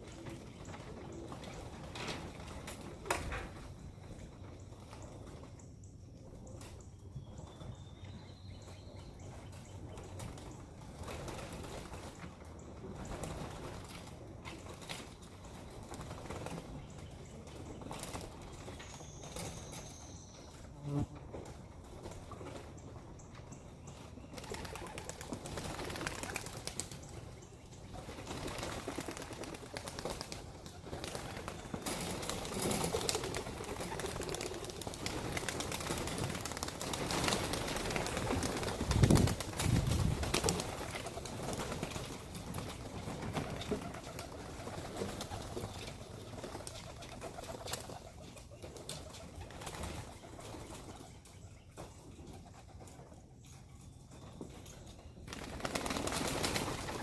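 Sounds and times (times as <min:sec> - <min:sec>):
pigeon wings flapping: 0:24.4 - 0:27.2, 0:28.0 - 0:51.0, 0:55.3 - 0:57.0.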